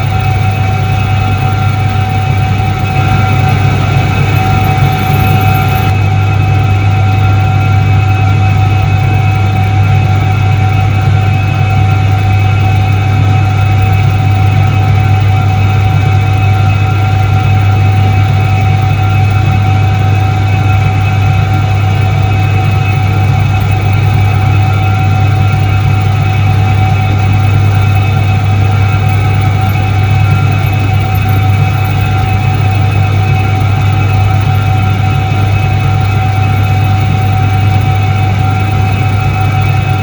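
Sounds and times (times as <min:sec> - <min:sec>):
washing machine motor humming: 0:00.0 - 0:06.2, 0:23.6 - 0:40.0.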